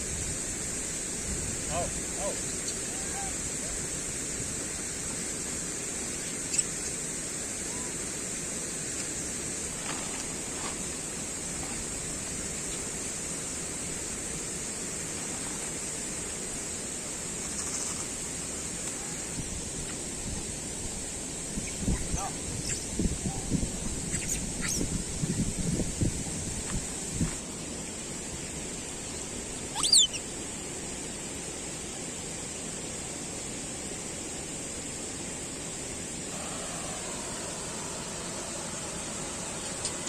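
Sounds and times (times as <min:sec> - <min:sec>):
outdoor background hiss: 0:00.0 - 0:40.0
high falling animal calls: 0:29.7 - 0:30.3.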